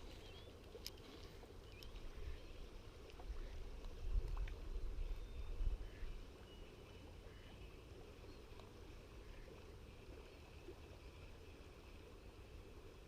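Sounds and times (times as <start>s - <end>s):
faint steady wind: 0.0s - 13.0s
river water flowing: 0.0s - 13.0s
wind rumbling on microphone: 1.8s - 6.3s.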